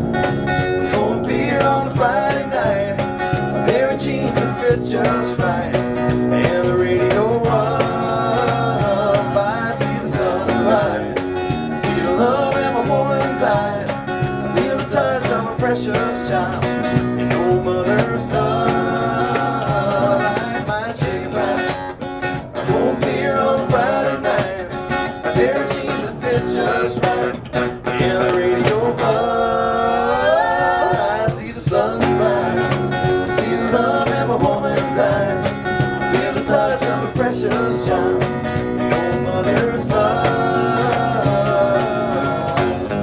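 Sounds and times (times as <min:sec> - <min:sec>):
country music on acoustic guitar: 0:00.0 - 0:43.0.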